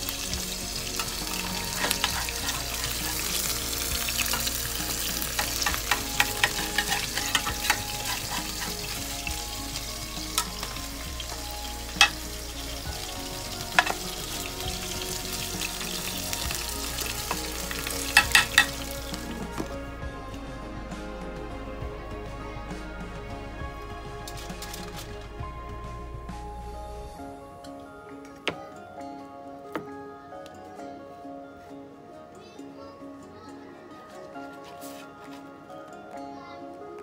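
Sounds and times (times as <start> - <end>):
food sizzling: 0.0 - 28.7
metal spatula scraping glass dish: 1.0 - 9.3, 17.2 - 18.9.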